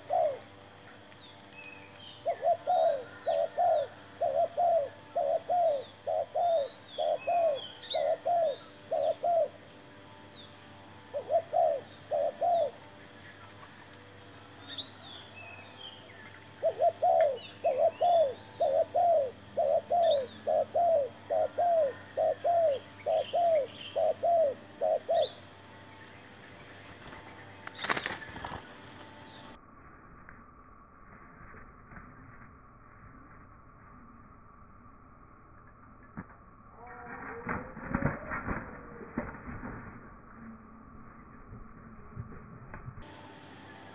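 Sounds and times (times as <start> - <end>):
dove cooing: 0.0 - 0.6, 2.2 - 9.7, 11.0 - 12.9, 16.5 - 25.5
small birds chirping: 0.0 - 29.6.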